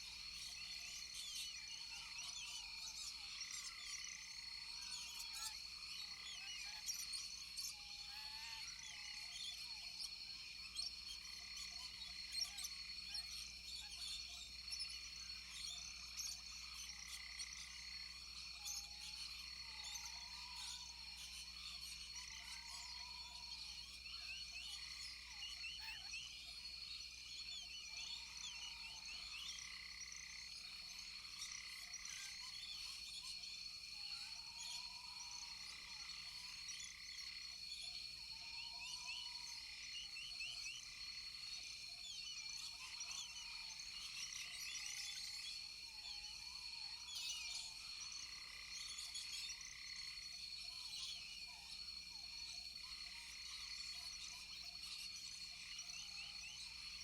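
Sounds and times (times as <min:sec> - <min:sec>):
insect drone: 0:00.0 - 0:57.0.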